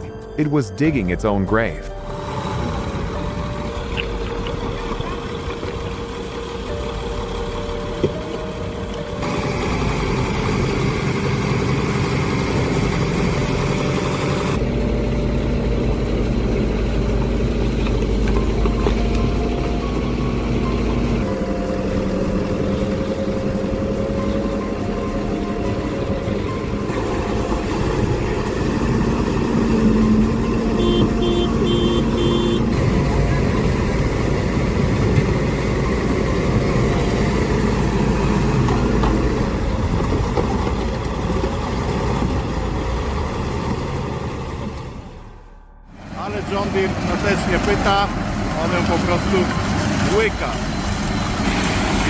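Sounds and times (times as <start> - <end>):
heavy machinery engine running: 0.0 - 52.0
warning beeper: 30.0 - 34.1.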